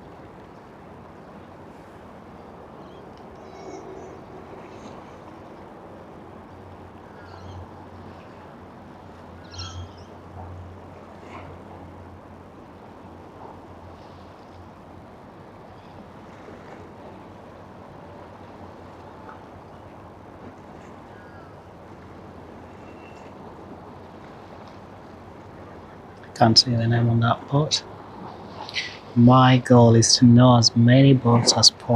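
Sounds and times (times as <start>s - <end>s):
low engine hum: 0.0s - 31.9s
bird chirps: 7.2s - 7.7s, 9.4s - 10.2s.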